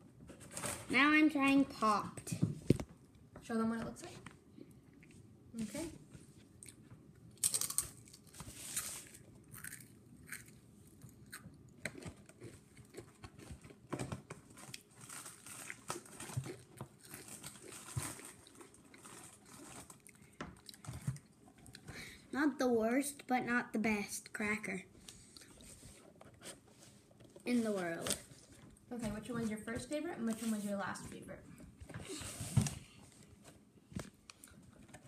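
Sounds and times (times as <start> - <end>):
child crunching crackers: 7.4 - 21.9.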